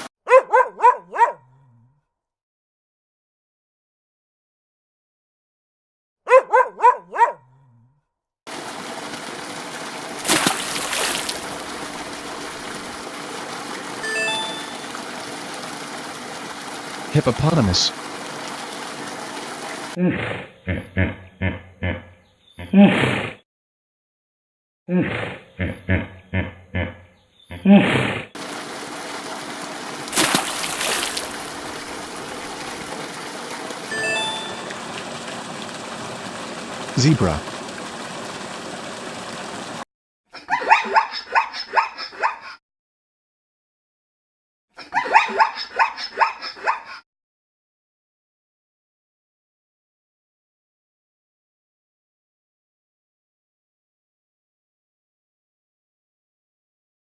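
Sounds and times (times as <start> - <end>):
dog barking: 0.2 - 1.5, 6.3 - 7.5
running water rushing: 8.5 - 20.0, 28.4 - 39.8
water splash: 8.5 - 20.0, 28.4 - 39.8
hippopotamus grunting calls: 20.0 - 23.3, 24.9 - 28.3.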